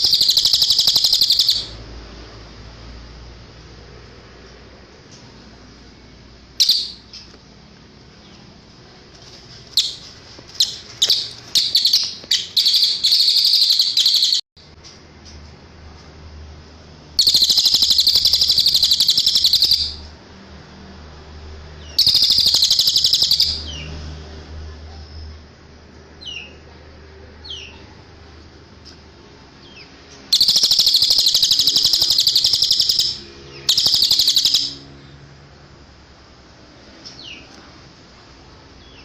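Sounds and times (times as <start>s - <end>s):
songbird high trills: 0.0s - 1.8s, 9.8s - 14.4s, 17.2s - 20.0s, 21.9s - 23.6s, 30.3s - 34.9s.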